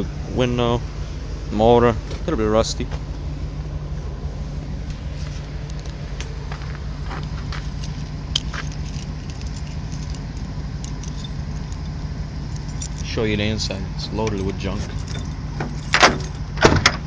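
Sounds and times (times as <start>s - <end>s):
vehicle engine idling: 0.0s - 17.0s
light clicks and rustles: 4.8s - 13.2s.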